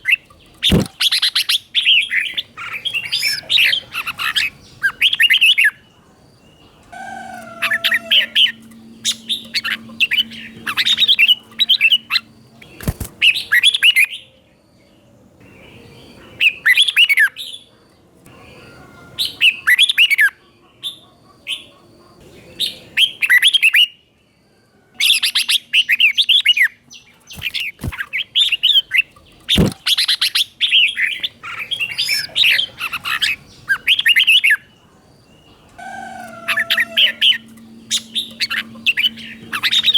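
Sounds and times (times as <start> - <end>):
bulbul chirping song: 0.0 - 14.8, 25.0 - 39.9.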